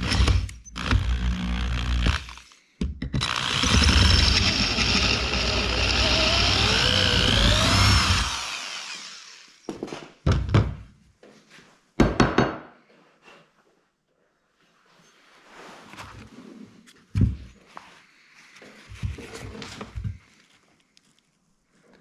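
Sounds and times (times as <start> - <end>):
power drill running: 0.0 - 2.6, 3.2 - 9.8
drill bit squealing: 3.2 - 9.6.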